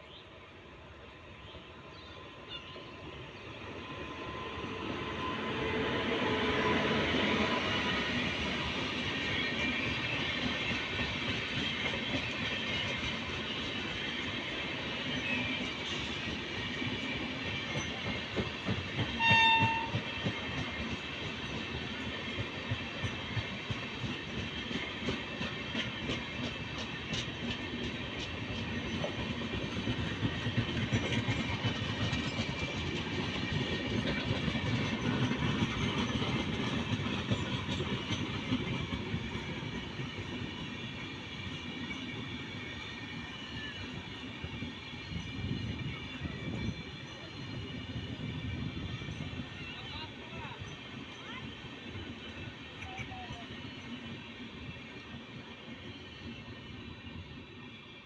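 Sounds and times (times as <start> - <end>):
train wheels clattering: 6.4 - 49.4
train horn blast: 19.2 - 20.2.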